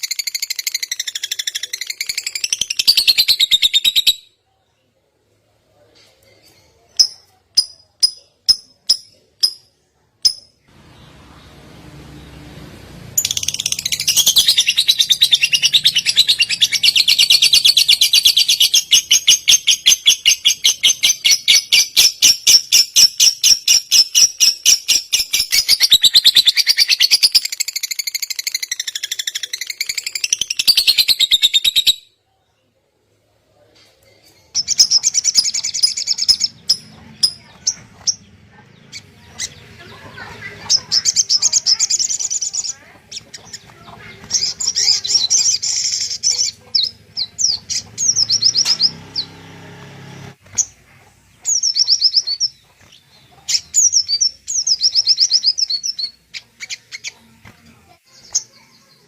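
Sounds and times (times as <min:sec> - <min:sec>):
bird chirps and clicking notes: 0:06.4 - 0:10.7
songbird trill: 0:34.1 - 0:49.5.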